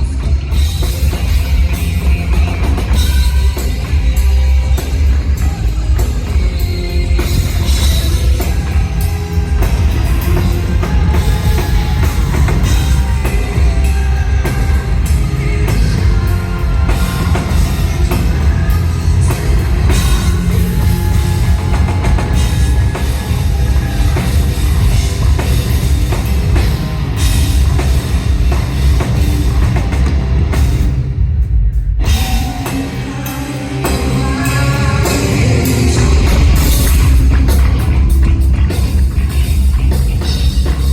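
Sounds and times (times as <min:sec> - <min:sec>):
hard rock band playing live: 0:00.0 - 0:40.9.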